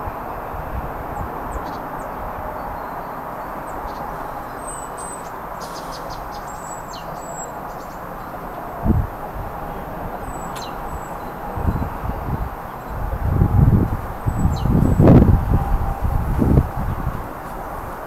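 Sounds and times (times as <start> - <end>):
steady rushing noise: 0.0 - 18.0
small birds chirping: 1.5 - 8.6, 9.6 - 13.0, 14.2 - 15.2.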